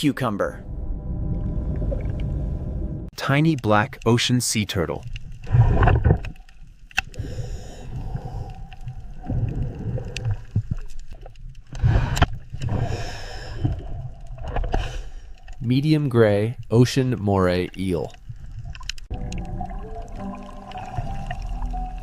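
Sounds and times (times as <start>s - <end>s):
low rumbling gurgling water: 0.0s - 3.1s, 7.1s - 15.5s, 18.1s - 22.0s.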